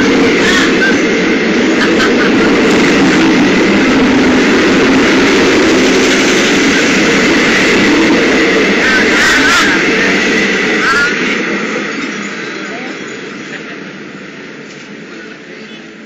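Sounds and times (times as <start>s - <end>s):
electric trains rumbling: 0.0s - 16.0s.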